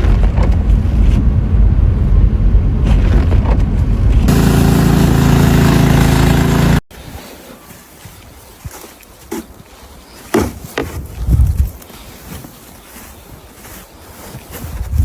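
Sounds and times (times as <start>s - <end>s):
motor vehicle engine rumble: 0.0s - 6.8s.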